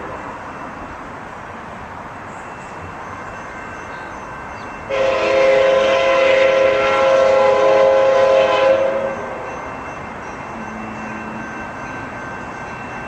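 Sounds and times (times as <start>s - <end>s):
train rumbling: 0.0s - 13.0s
locomotive air horn blast: 4.9s - 9.5s.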